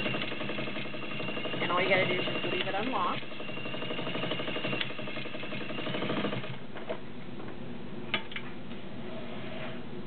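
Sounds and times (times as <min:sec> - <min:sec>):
sewing machine stitching: 0:00.0 - 0:06.6.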